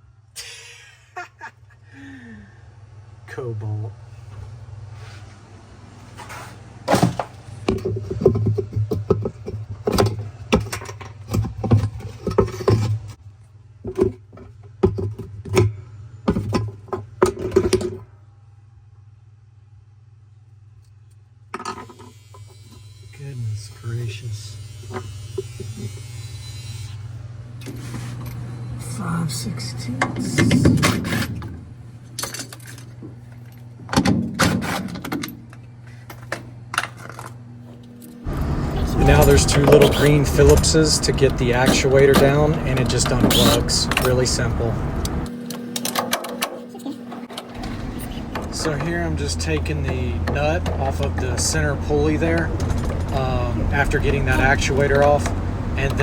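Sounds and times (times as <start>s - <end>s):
hand tools knocking and clanking: 38.3s - 44.8s, 45.8s - 56.0s.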